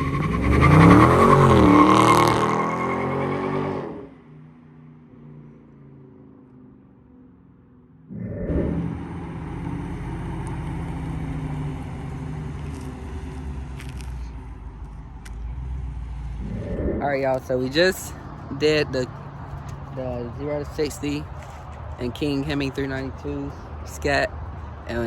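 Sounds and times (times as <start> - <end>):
car engine low rumble: 4.1 - 25.0
loud steady engine rumble: 8.2 - 25.0.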